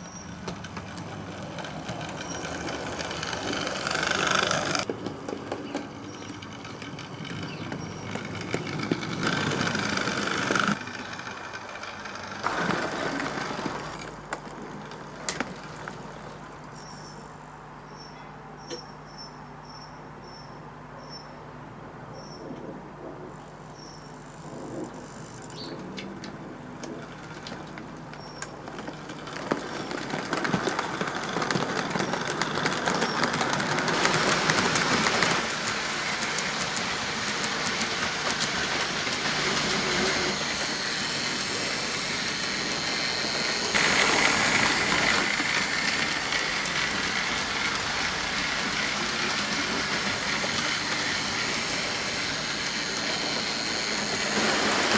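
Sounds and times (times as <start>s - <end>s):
model train motor whirr: 0.0s - 4.9s, 5.8s - 17.1s, 24.2s - 25.6s, 26.9s - 54.9s
wheels clicking over rail joints: 0.0s - 17.3s, 23.3s - 54.9s.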